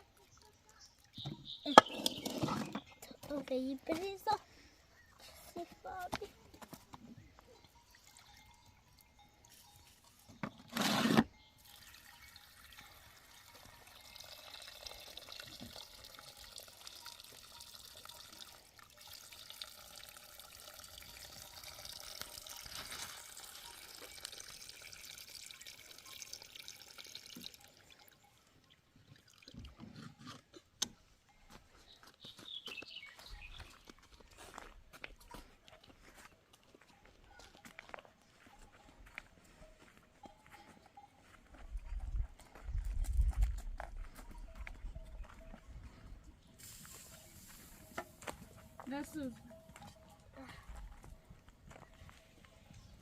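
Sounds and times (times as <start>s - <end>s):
water trickling from pouring: 11.6s - 30.0s.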